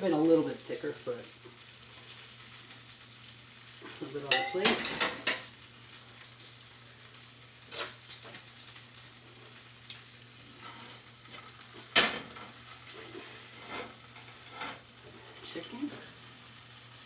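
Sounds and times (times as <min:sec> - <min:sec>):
food sizzling in a pan: 0:00.0 - 0:17.0
utensil knocking cookware: 0:04.3 - 0:05.4.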